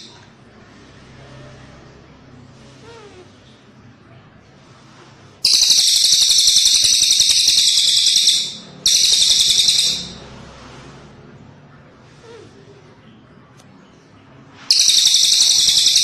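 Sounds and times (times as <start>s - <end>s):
bird buzzing trills: 5.4s - 10.2s.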